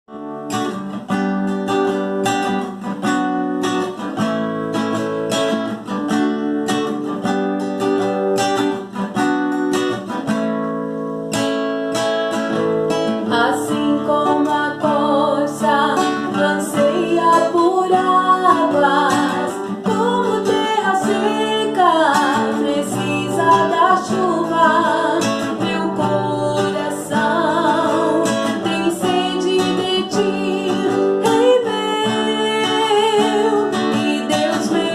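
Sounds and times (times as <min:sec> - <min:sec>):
acoustic guitar strumming: 0:00.1 - 0:34.9
person singing: 0:13.2 - 0:34.9.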